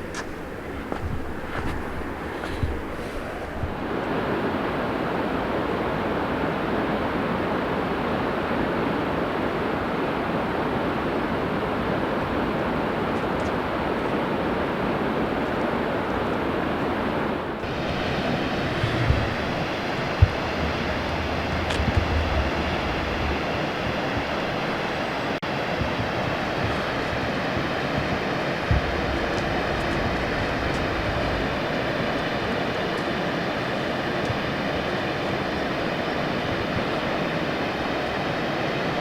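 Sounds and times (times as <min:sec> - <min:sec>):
faint low hum: 0:17.6 - 0:38.0
waterfall rushing: 0:17.6 - 0:38.4
knocks: 0:18.4 - 0:25.0, 0:25.8 - 0:31.6.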